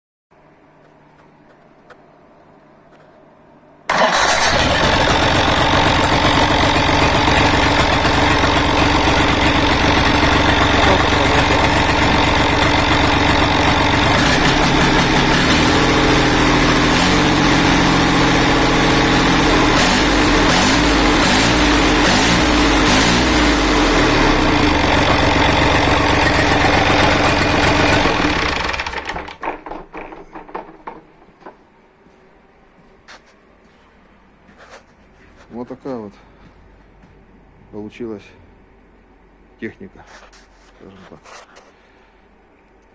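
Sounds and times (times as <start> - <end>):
diesel tractor engine running: 3.9 - 29.7.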